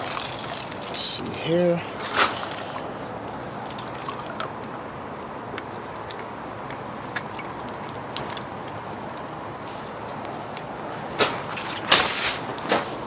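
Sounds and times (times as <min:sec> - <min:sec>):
water running from hose: 0:00.0 - 0:04.4
small ticks and drips: 0:00.0 - 0:12.7.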